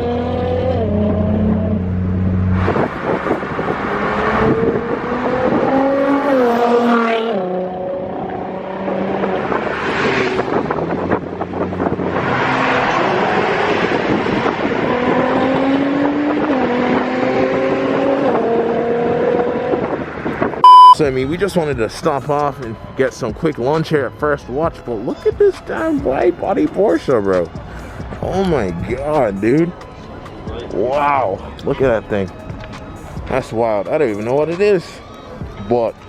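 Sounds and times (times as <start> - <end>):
car engine revving through gears: 0.0 - 21.0
wind rush: 2.5 - 6.2, 8.0 - 20.6.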